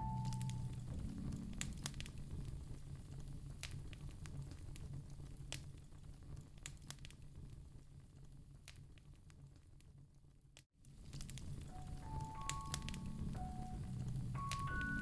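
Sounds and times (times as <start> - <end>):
low steady hum: 0.0 - 8.6, 10.9 - 15.0
wood fire crackling: 0.0 - 15.0
sharp pops and snaps: 0.2 - 7.4, 8.3 - 10.0.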